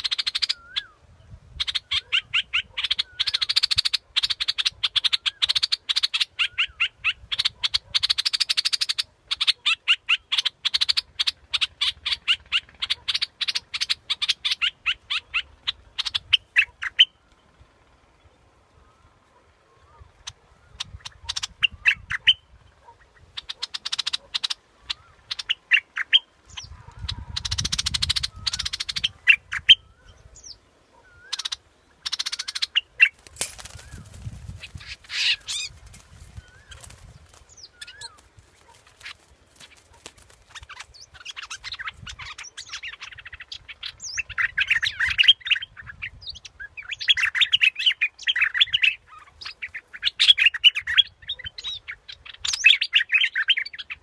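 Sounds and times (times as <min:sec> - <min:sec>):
bird singing whistled notes: 0:00.2 - 0:01.0.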